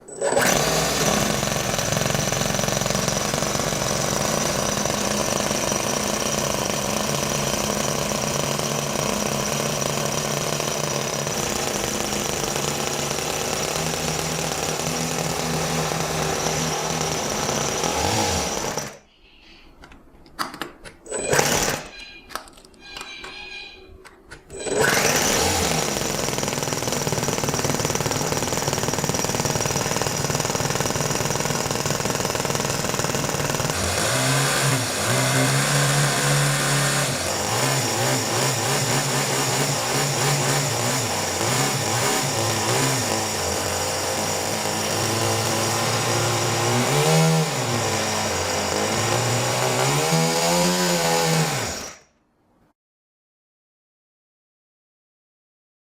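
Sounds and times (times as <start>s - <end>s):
small model engine running: 24.6s - 49.6s.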